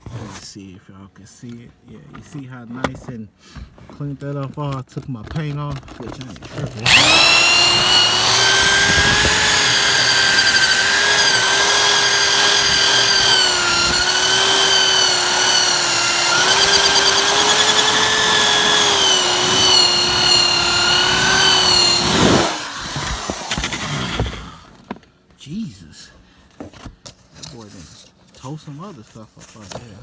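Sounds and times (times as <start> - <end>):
electric drill whining: 6.8 - 24.7.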